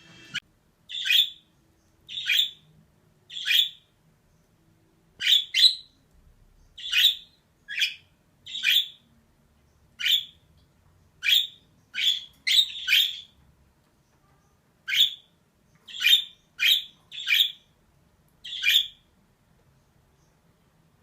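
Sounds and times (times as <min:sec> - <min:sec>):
budgerigar chirping: 0:00.9 - 0:02.7, 0:03.3 - 0:03.9, 0:05.2 - 0:06.0, 0:06.8 - 0:09.0, 0:10.0 - 0:10.4, 0:11.2 - 0:13.4, 0:14.9 - 0:15.3, 0:15.9 - 0:17.7, 0:18.4 - 0:19.1.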